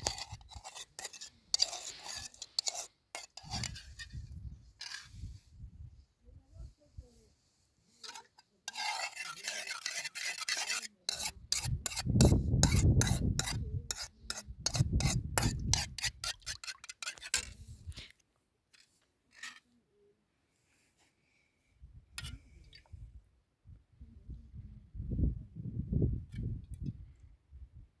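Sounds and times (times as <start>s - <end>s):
scraping strokes: 0.0s - 5.5s, 7.0s - 18.2s.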